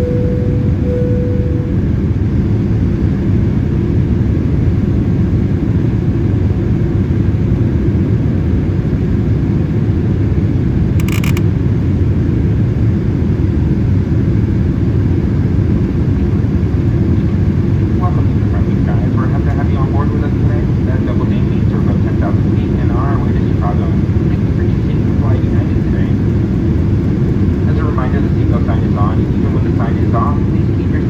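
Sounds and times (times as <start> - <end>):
high-pitched ping: 0.0 - 1.9
airplane engines rumbling in cabin: 0.0 - 31.0.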